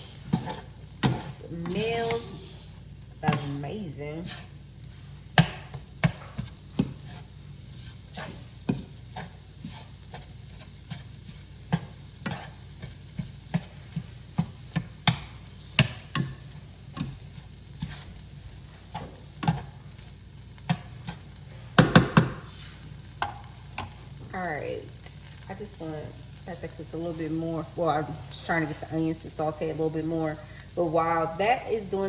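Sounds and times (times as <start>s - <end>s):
meat and onions sizzling in a pan: 0.0s - 32.0s
utensil knocking and scraping pan: 0.2s - 2.4s, 3.2s - 4.5s, 5.3s - 18.2s, 18.9s - 19.7s, 20.7s - 22.5s.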